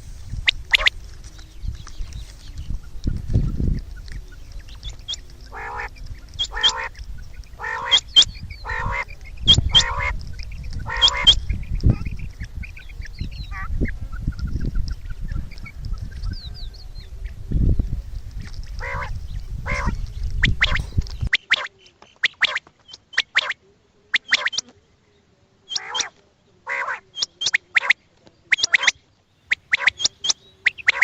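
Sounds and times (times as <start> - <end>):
quail harsh rasping calls: 0.0 - 1.0, 2.8 - 16.4, 18.7 - 24.7, 25.7 - 31.0
sharp high chirp: 28.5 - 31.0.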